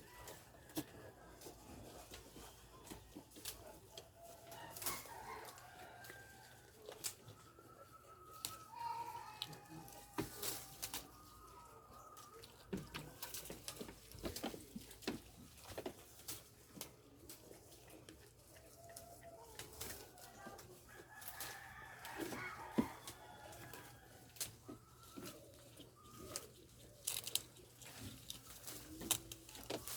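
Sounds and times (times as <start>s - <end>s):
chickens clucking: 0.0s - 29.9s.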